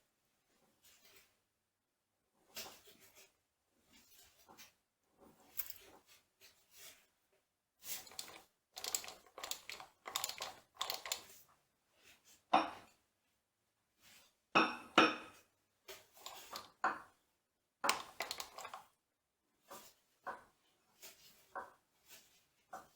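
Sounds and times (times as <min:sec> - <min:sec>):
metal tools clinking and scraping: 0:05.5 - 0:05.9, 0:08.0 - 0:11.2, 0:16.2 - 0:16.7, 0:17.9 - 0:18.8.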